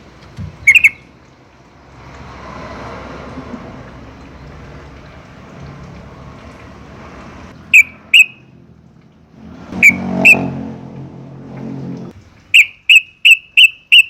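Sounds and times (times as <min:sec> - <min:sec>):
bird whistling sharp notes: 0:00.7 - 0:01.0.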